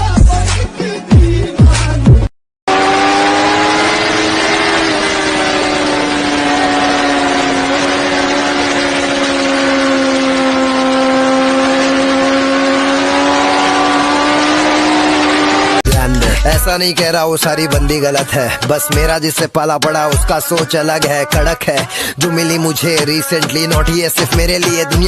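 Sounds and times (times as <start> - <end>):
motorcycle engine running: 2.7 - 16.7.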